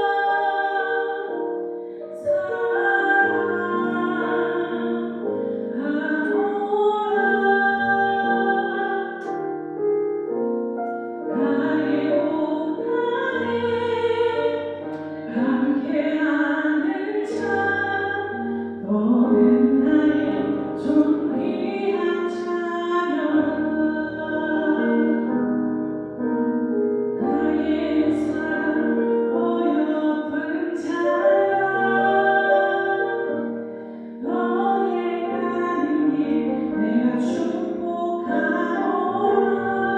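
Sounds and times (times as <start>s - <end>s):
person singing slow song: 0.0s - 9.5s, 27.2s - 39.9s
piano accompaniment: 0.0s - 39.9s.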